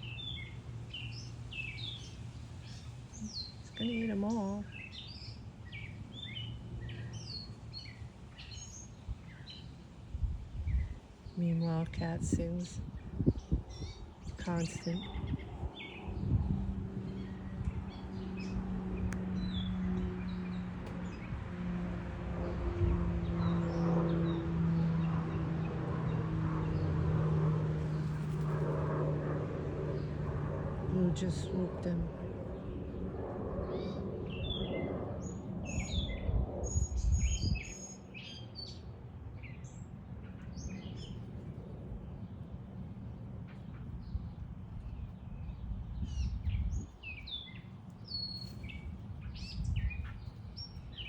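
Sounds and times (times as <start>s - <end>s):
small birds chirping: 0.0s - 9.9s, 10.5s - 21.4s, 29.8s - 51.0s.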